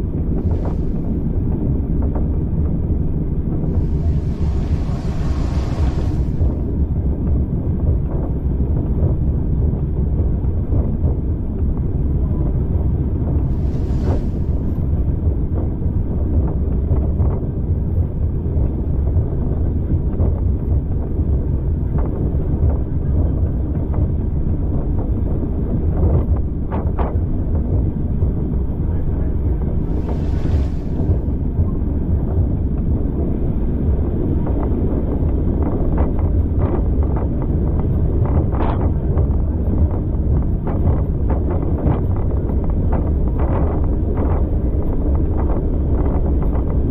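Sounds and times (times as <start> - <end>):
train rumbling: 0.0 - 46.9
wind buffeting microphone: 0.0 - 46.9
short hisses: 3.8 - 6.6.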